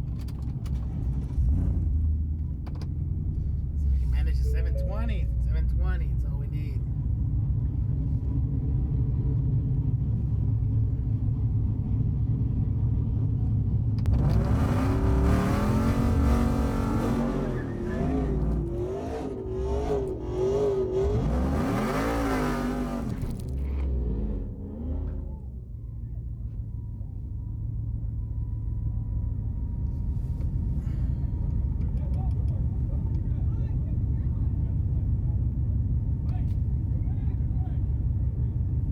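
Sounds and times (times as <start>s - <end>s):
low engine rumble: 0.0s - 38.9s
race truck engine revving: 14.0s - 25.7s.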